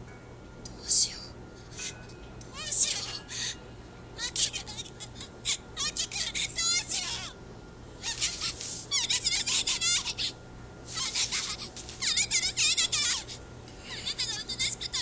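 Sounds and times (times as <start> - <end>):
faint low hum: 0.0 - 15.0
rapid high-pitched squeaks: 8.0 - 10.3, 10.9 - 13.4.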